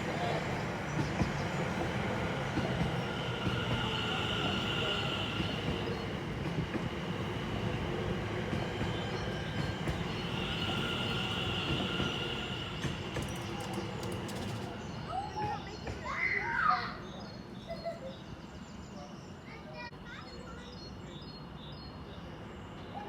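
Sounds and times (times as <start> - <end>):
train wheels rumbling on rails: 0.0 - 16.2.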